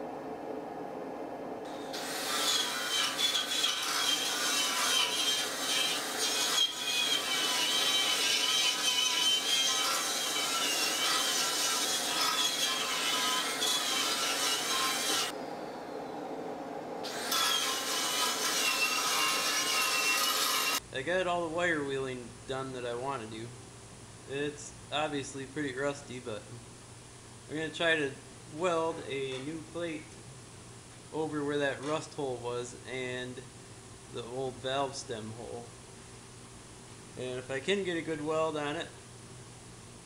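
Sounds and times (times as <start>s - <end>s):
wire wheel grinding rust off steel: 1.9s - 15.3s, 17.0s - 20.8s.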